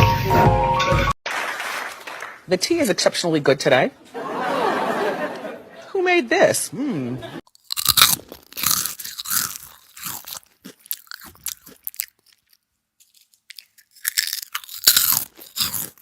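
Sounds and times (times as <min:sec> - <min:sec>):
crunching and chewing food: 0:07.5 - 0:16.0.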